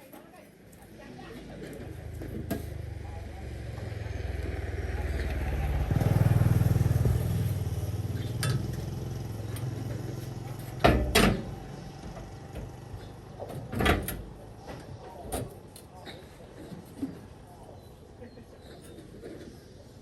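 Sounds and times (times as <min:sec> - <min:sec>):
four-wheeler engine running: 0:01.8 - 0:14.7.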